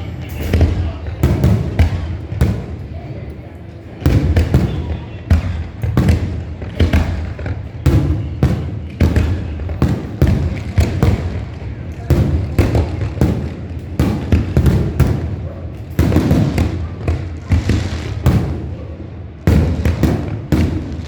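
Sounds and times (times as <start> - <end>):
fireworks bursting: 0.0 - 21.0.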